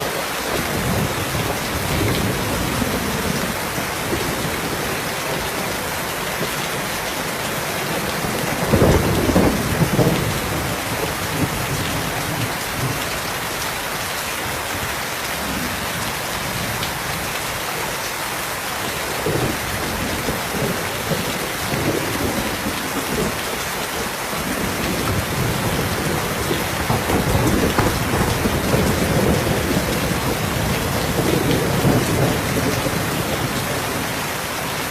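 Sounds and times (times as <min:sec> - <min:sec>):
heavy rain: 0:00.0 - 0:34.9
low rolling thunder: 0:07.8 - 0:13.1, 0:19.2 - 0:34.2.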